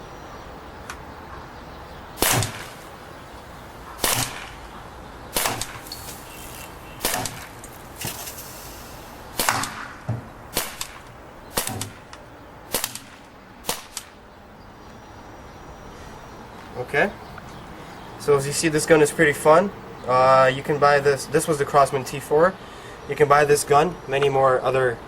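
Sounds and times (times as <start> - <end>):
air pistol shots: 2.2 - 2.8, 4.0 - 4.6, 5.3 - 12.1, 12.7 - 14.2.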